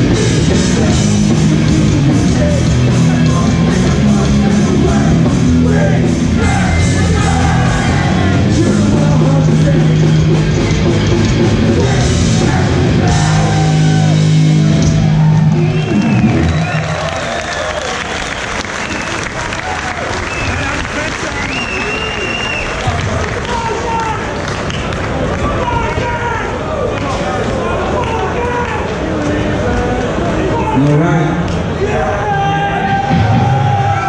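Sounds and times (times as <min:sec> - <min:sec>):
punk band playing live: 0:00.0 - 0:17.1, 0:32.9 - 0:34.0
shouted vocals: 0:03.4 - 0:09.6, 0:11.6 - 0:17.9, 0:30.0 - 0:34.0.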